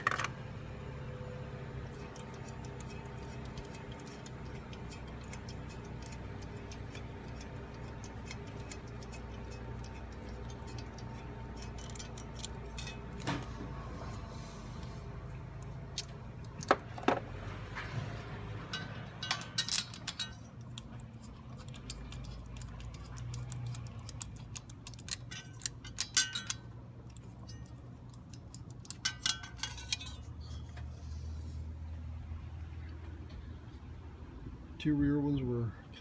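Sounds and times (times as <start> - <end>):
low steady hum: 0.0 - 36.0
metal hand tools clinking: 1.8 - 13.6, 18.6 - 30.7.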